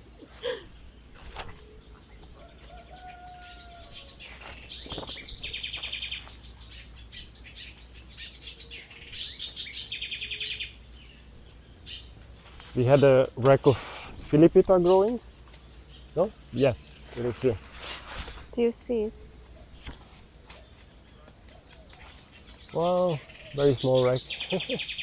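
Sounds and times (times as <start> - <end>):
high-pitched insect drone: 0.0 - 25.0
tropical birds calling: 0.0 - 25.0.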